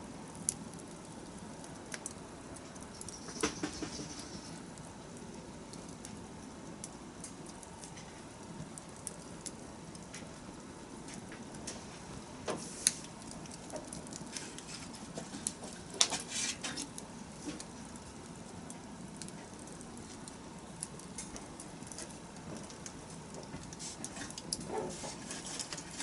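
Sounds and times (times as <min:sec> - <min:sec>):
campfire crackling and popping: 0:00.0 - 0:26.0
flame rustle: 0:00.0 - 0:26.0.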